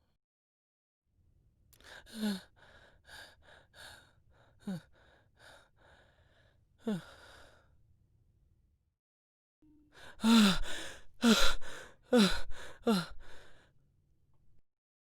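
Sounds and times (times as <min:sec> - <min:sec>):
person panting heavily: 0:10.0 - 0:13.6.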